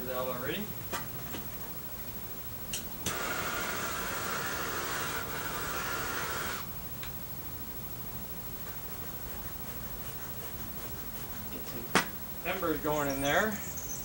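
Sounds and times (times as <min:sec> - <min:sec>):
torch flame hissing: 0:02.7 - 0:06.8.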